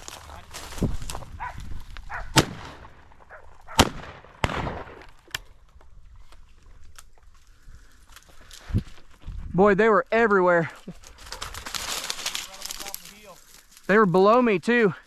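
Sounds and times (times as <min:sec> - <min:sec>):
shotgun shots: 0:02.3 - 0:03.0, 0:03.7 - 0:05.1.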